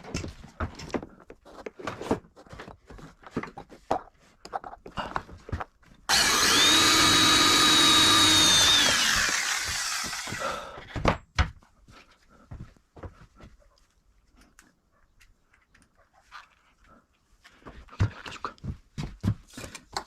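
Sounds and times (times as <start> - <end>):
power drill whining: 6.1 - 10.6.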